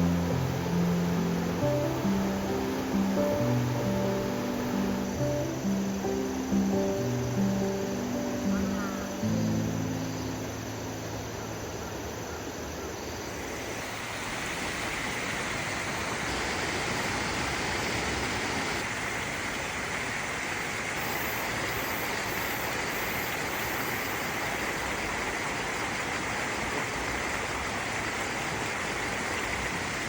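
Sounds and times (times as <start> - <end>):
river water rushing over rocks: 0.0 - 30.0.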